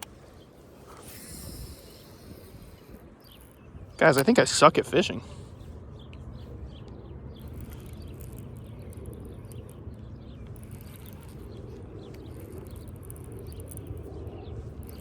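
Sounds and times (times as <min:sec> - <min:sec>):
light ticks: 0:00.0 - 0:00.2, 0:06.8 - 0:15.0
wind rumble on microphone: 0:00.0 - 0:15.0.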